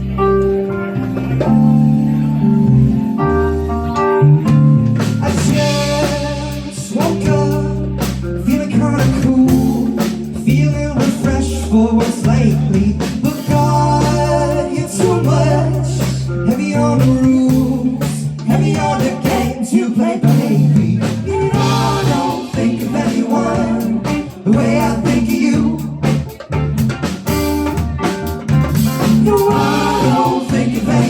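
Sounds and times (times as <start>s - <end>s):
bass line: 0.0s - 31.0s
drum kit steady beat: 4.0s - 31.0s.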